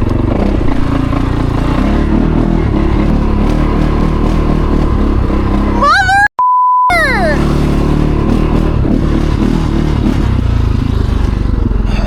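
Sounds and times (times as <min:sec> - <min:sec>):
person's voice rising in pitch: 0:05.7 - 0:07.5
single-tone censor bleep: 0:06.3 - 0:07.1
atv engine idling: 0:10.2 - 0:12.0.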